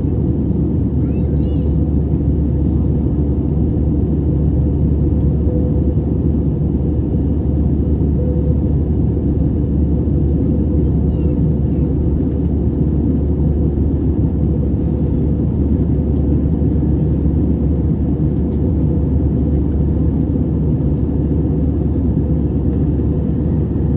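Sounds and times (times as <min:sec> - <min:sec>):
aircraft cabin engine rumble: 0:00.0 - 0:23.9.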